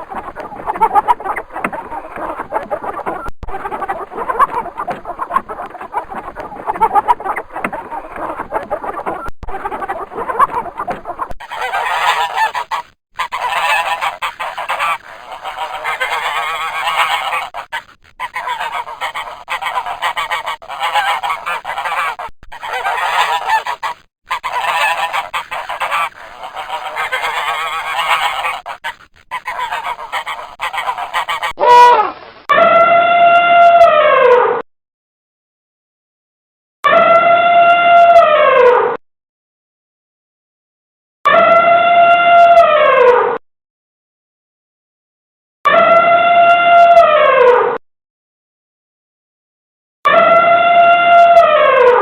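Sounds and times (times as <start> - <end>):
flock of birds calling harshly: 0.0 - 32.0
long falling bird call: 11.4 - 31.6.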